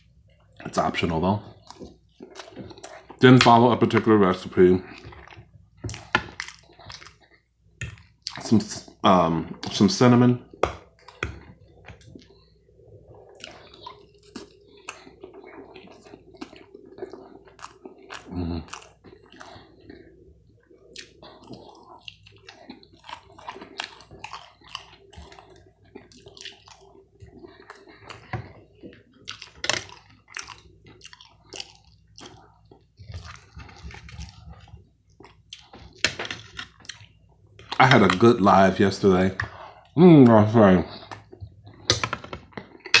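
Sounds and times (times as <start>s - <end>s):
faint steady hum: 0.0s - 43.0s
wet chewing mouth clicks: 13.2s - 35.9s.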